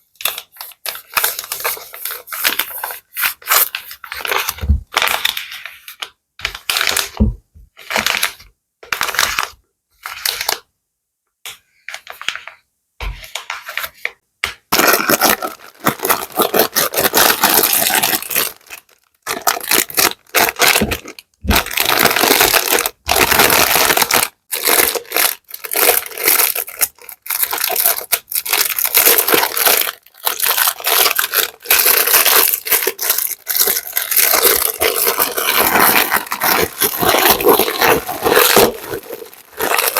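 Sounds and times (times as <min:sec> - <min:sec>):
plastic bag crinkling: 0:14.7 - 0:39.9.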